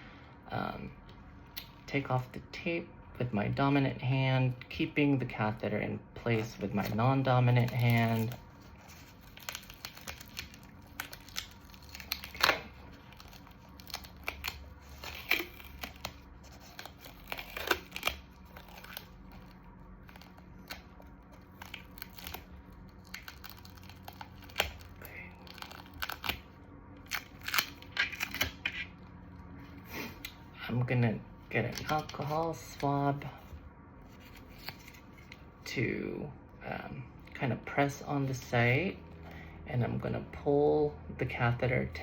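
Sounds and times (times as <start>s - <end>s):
tape peeling off skin: 6.4s - 29.1s.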